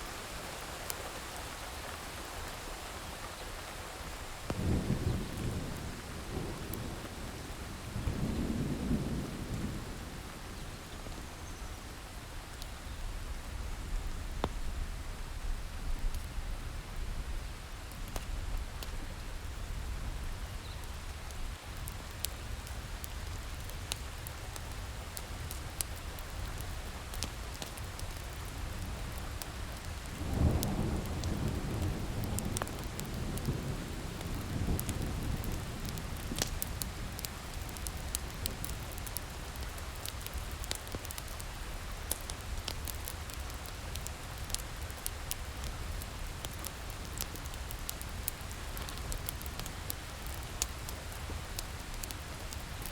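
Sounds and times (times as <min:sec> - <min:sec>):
steady rain: 0:00.0 - 0:52.9
thunder rumbling: 0:04.5 - 0:11.2, 0:29.0 - 0:39.3
wood fire crackling: 0:17.5 - 0:52.9.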